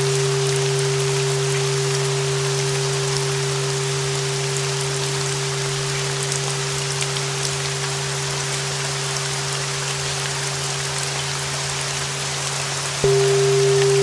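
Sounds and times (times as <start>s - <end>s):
steady rain: 0.0s - 14.0s
low drone: 13.0s - 14.0s
steady tone: 13.0s - 14.0s.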